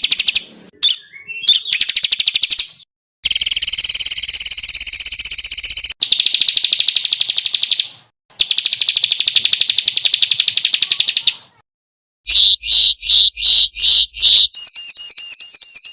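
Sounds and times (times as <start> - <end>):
sharp bird chirps: 0.0 - 11.6, 12.3 - 15.9
songbird rapid high-pitched trills: 3.3 - 11.4, 12.3 - 15.9.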